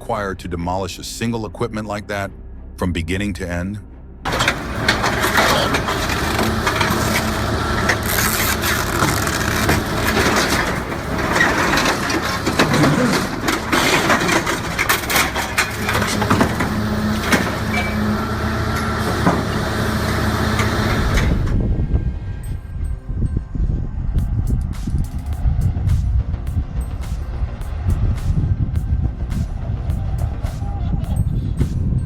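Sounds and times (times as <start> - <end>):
metal clanking and crunching: 4.3 - 21.6
diesel machinery running: 4.3 - 32.0.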